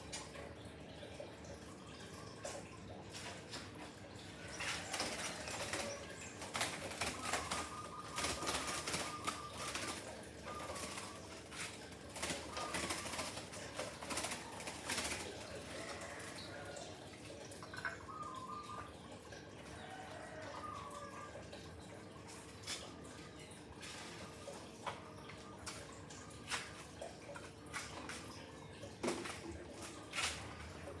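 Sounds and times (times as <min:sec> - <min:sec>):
bird flapping wings: 0:04.6 - 0:16.4.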